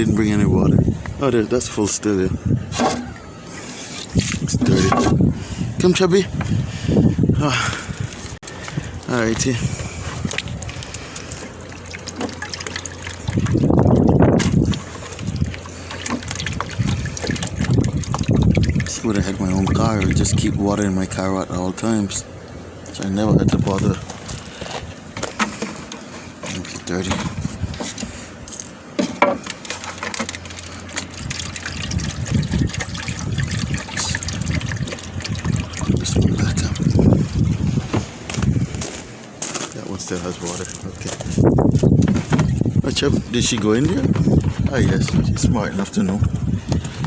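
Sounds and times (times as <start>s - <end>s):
water splashing onto ground: 3.5s - 4.6s, 9.3s - 20.7s, 29.4s - 37.6s
handling knocks and rustling: 23.8s - 31.1s, 40.5s - 42.8s.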